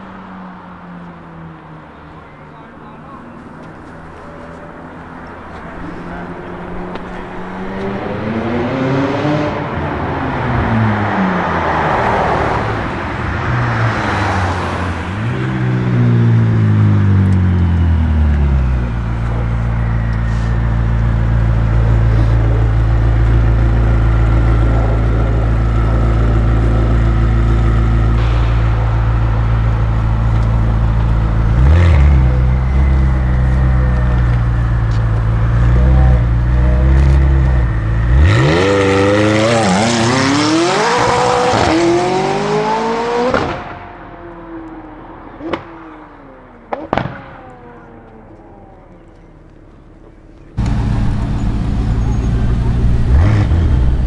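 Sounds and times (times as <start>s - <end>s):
car engine idling and revving: 0.0s - 54.0s
car accelerating through gears: 5.8s - 12.8s, 30.2s - 43.8s
exhaust cracks: 16.5s - 40.4s, 46.5s - 54.0s.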